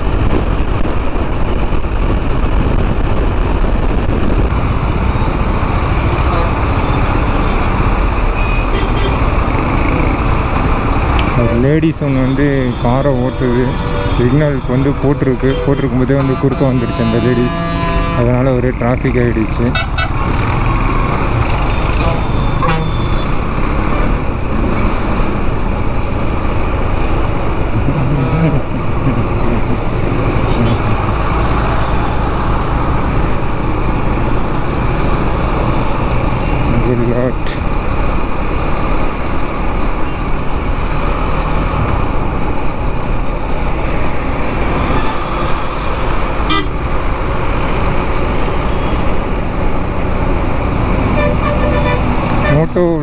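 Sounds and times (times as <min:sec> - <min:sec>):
road traffic noise: 0:00.0 - 0:53.0
vehicle horn toot: 0:15.5 - 0:18.4, 0:19.7 - 0:20.2, 0:22.0 - 0:23.3, 0:46.5 - 0:46.8, 0:51.2 - 0:52.6.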